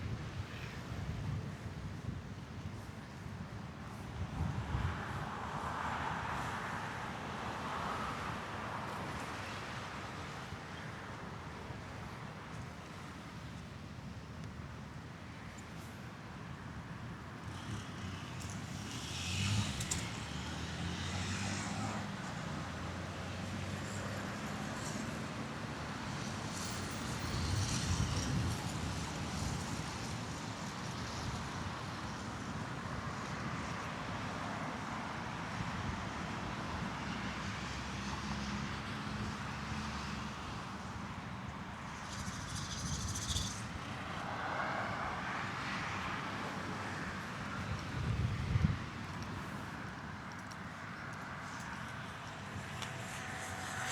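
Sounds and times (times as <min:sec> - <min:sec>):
steady traffic noise: 0:00.0 - 0:53.9
cars passing: 0:42.4 - 0:53.9.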